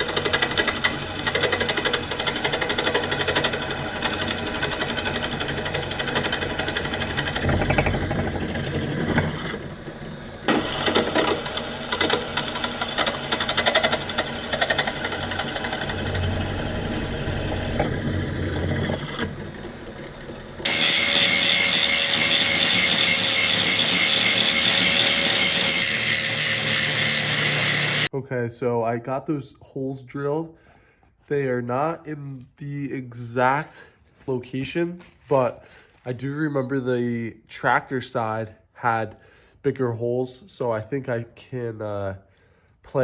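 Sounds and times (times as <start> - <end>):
power drill boring into steel: 0.0 - 28.1.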